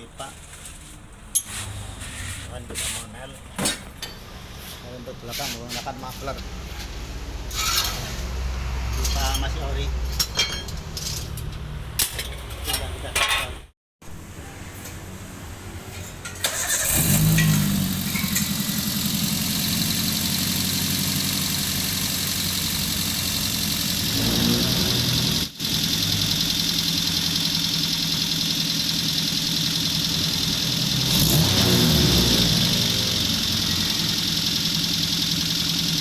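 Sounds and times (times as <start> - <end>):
car engine starting: 16.4 - 36.0
car engine revving: 16.5 - 36.0
car engine running: 16.8 - 36.0.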